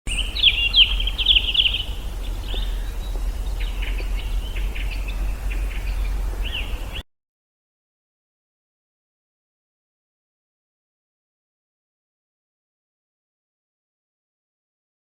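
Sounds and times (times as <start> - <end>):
small birds chirping: 0.1 - 7.0
steady low hum: 0.1 - 7.0.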